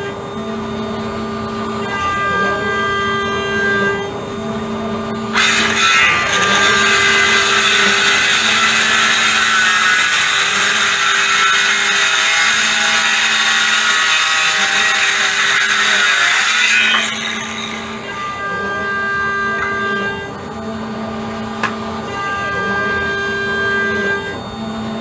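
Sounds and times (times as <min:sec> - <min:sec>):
machine hum: 0:00.0 - 0:25.0
power tool cutting hiss: 0:05.4 - 0:18.1.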